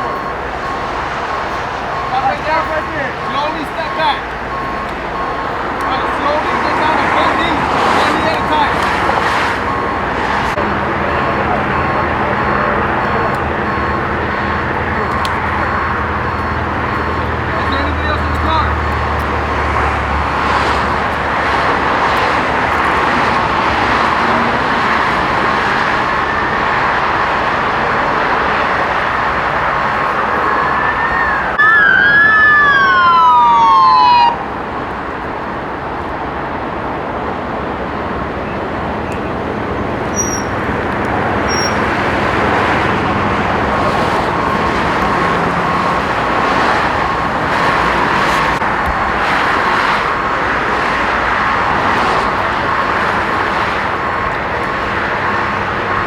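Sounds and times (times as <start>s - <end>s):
police siren: 0.0s - 56.0s
traffic noise: 0.0s - 56.0s
short high beeps: 41.5s - 41.8s.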